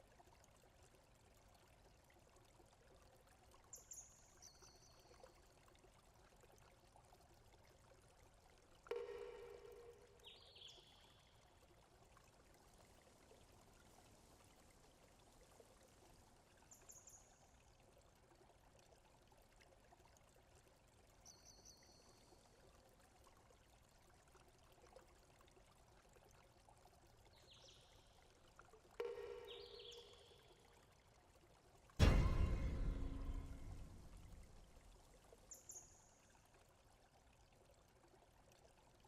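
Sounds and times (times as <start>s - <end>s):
faint steady hiss: 0.0s - 19.9s
faint high chirps: 29.0s - 30.6s.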